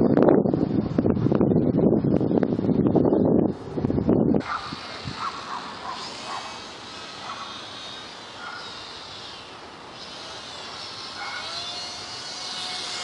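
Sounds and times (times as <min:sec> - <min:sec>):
steady hiss: 0:04.4 - 0:11.2
model plane motor whining: 0:04.4 - 0:13.0.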